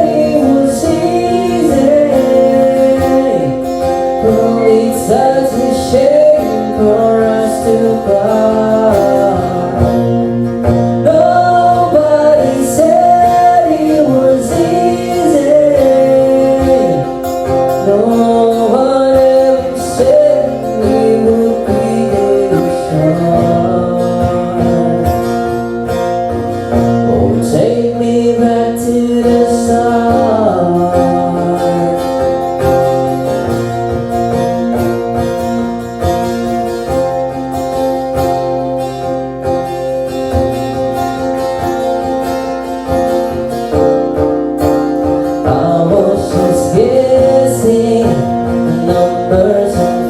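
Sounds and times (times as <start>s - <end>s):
person singing: 0.0s - 35.2s, 45.0s - 50.0s
acoustic guitar chords: 0.0s - 50.0s.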